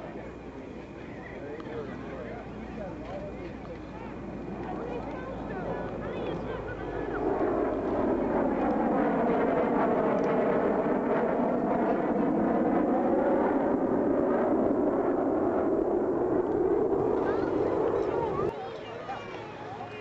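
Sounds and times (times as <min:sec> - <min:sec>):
jet flying past: 0:04.1 - 0:18.6.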